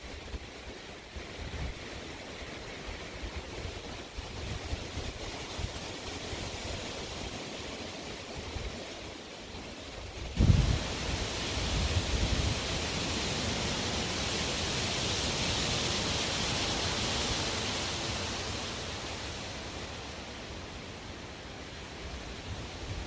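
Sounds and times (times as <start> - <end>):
strong wind gust: 10.2 - 13.6.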